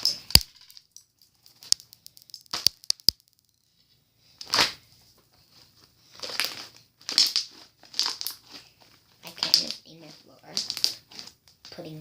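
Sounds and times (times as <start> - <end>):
slime popping and clicking: 0.2 - 0.6, 1.3 - 3.6
slime crackling: 1.3 - 3.6, 6.2 - 8.7, 9.3 - 11.9.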